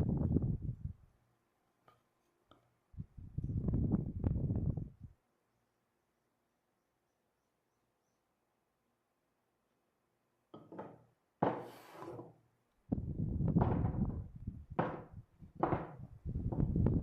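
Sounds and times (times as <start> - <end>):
timber knocks and thuds: 10.6 - 12.4, 13.5 - 16.9.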